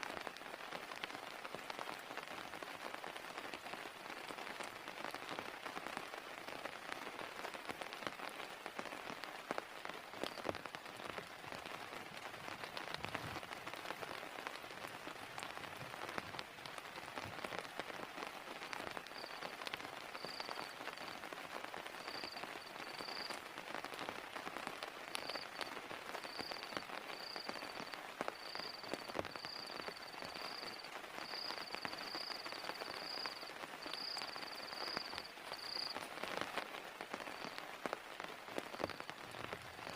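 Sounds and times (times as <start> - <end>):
heavy rain falling: 0.0 - 39.9
faint high-pitched chirp: 19.1 - 21.2, 21.9 - 23.4, 25.2 - 36.1.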